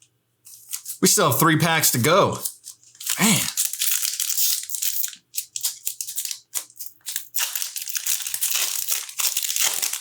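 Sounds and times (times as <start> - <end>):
plastic wrapper crinkling: 2.3 - 10.0.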